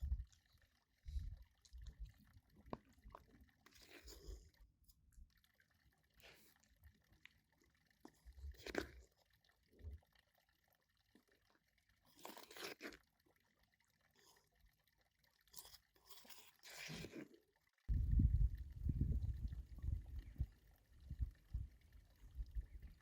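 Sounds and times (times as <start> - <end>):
food crunching and rustling: 8.1 - 9.3, 12.1 - 13.2, 15.4 - 17.4.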